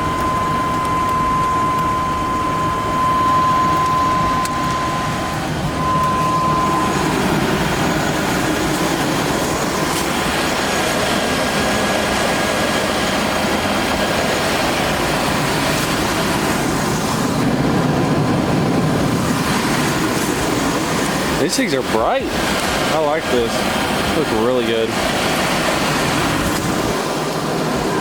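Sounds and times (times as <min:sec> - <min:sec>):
high-pitched tone: 0:00.0 - 0:09.8
truck engine idling: 0:00.0 - 0:28.0.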